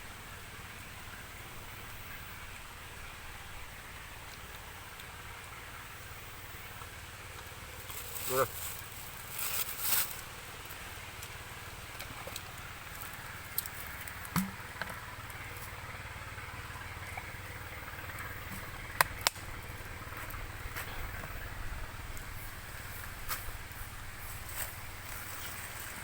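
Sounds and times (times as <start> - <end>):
sharp knocks: 14.3 - 15.0.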